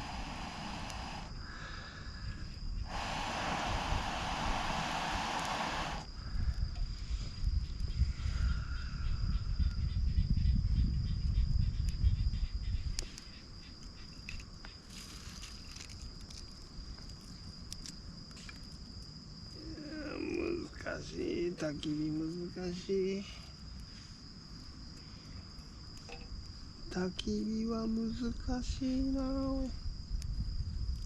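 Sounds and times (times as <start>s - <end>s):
heavy low rumble: 0.0s - 1.3s
loud hiss: 0.0s - 6.1s
insects trilling: 0.0s - 31.0s.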